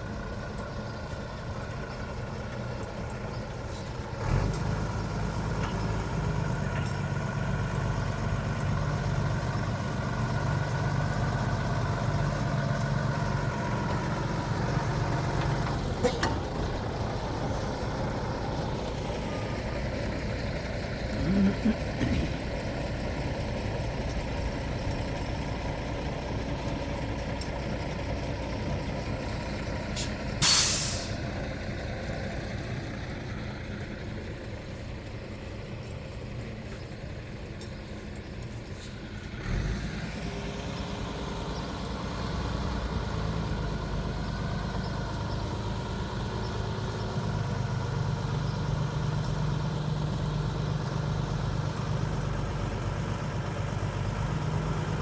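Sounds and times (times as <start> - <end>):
truck diesel engine idling: 0.0 - 55.0
air-brake hiss: 30.0 - 31.3.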